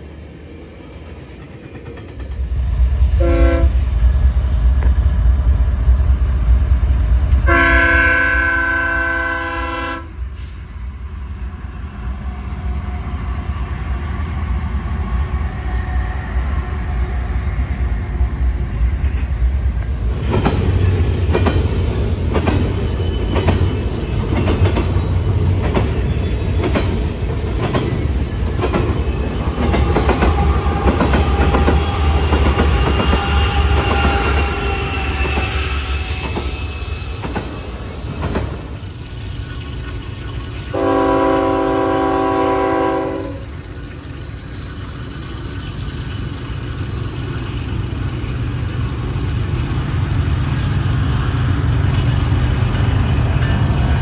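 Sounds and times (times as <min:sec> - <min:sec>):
clickety-clack of rail cars: 0:00.0 - 0:11.0, 0:11.6 - 0:54.0
diesel locomotives rumbling: 0:00.0 - 0:54.0
train air horn: 0:03.2 - 0:03.8, 0:07.4 - 0:10.6, 0:31.5 - 0:36.7, 0:40.7 - 0:43.5.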